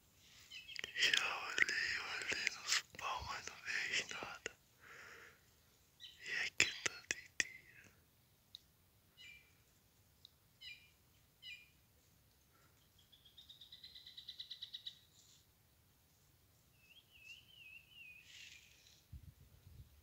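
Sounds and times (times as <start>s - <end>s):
bird trill: 10.6s - 11.8s, 12.9s - 15.1s, 16.8s - 18.9s
wild birds calling: 16.9s - 19.0s.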